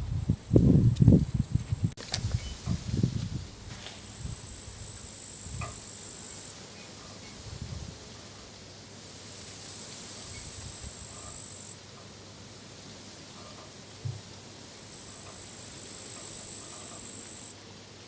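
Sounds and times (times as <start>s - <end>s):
wind rumbling on microphone: 0.0s - 5.8s, 7.2s - 8.2s
crickets chirring: 4.0s - 6.6s, 9.1s - 11.8s, 14.8s - 17.6s.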